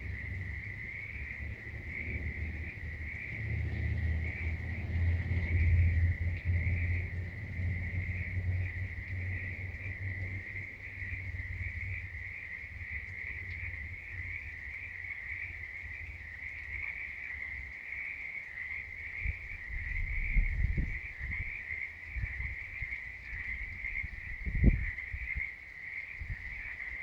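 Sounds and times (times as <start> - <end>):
low rumbles and thumps: 0.0 - 12.2
frogs calling in chorus: 0.0 - 27.0.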